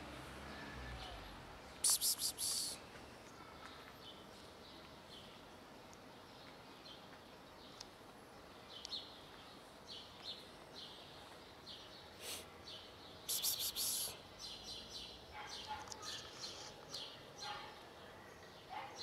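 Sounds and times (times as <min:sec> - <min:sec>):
faint outdoor hiss: 0:00.0 - 0:19.0
high bird chirps: 0:13.3 - 0:14.8.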